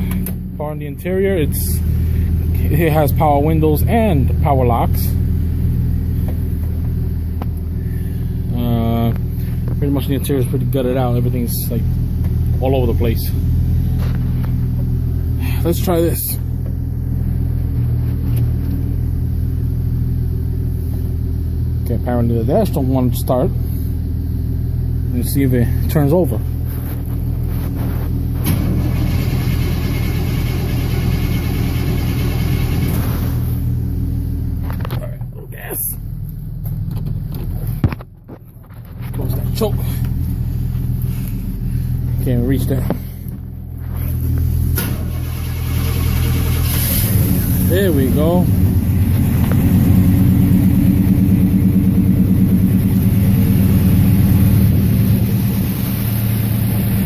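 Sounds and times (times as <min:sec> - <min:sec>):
steady engine hum: 0:00.0 - 0:57.0
engine cranking: 0:41.0 - 0:55.2.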